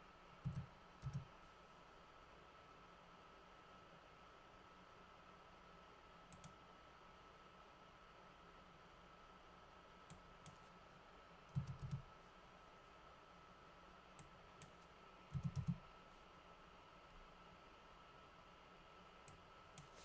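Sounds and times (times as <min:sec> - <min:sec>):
computer mouse clicks: 0:00.4 - 0:01.3, 0:06.3 - 0:06.6, 0:10.0 - 0:10.7, 0:11.5 - 0:12.1, 0:14.2 - 0:15.8, 0:19.2 - 0:20.0
keyboard typing: 0:00.4 - 0:01.3, 0:11.5 - 0:12.1, 0:14.2 - 0:15.8.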